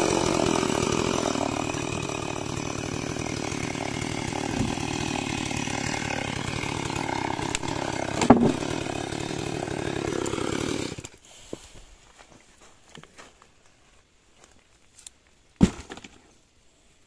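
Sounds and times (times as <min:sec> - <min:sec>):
chainsaw cutting timber: 0:00.0 - 0:11.3.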